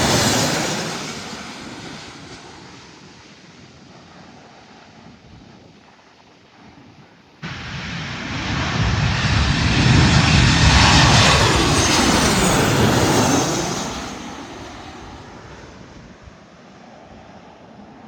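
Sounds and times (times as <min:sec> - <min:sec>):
jet airliner passing: 0:00.0 - 0:03.4, 0:07.4 - 0:17.4.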